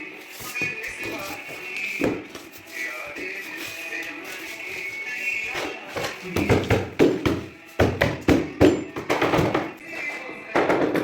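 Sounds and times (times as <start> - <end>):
flooring pieces being knocked: 6.0 - 9.8, 10.5 - 11.0.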